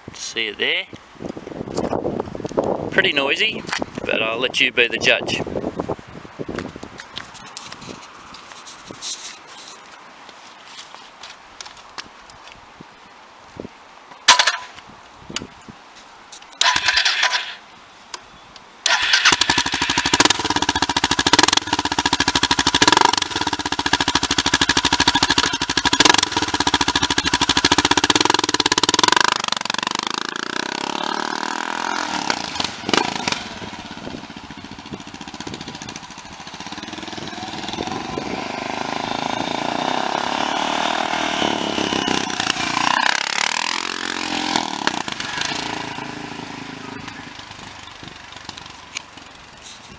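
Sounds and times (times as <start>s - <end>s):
motorcycle engine cranking: 16.6s - 17.6s, 18.9s - 38.1s
motorcycle engine throttle blips: 18.9s - 49.8s.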